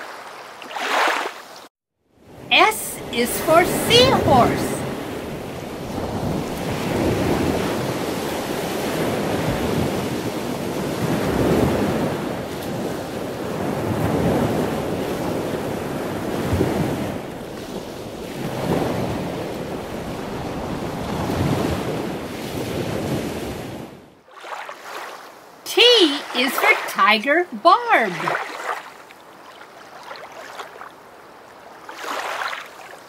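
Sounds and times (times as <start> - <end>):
rushing surf-like water: 0.0 - 33.0.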